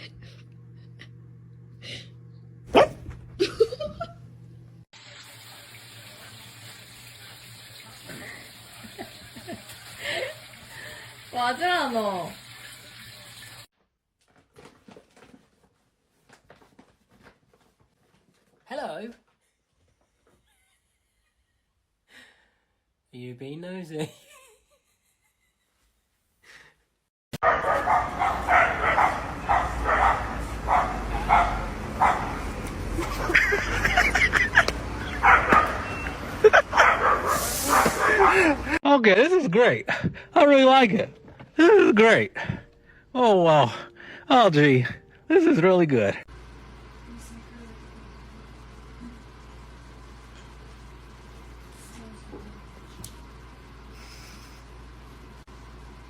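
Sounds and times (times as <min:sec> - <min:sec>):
dog barking: 0:02.7 - 0:03.2, 0:27.4 - 0:32.4, 0:35.1 - 0:36.0, 0:36.6 - 0:38.6
running water: 0:05.0 - 0:13.7.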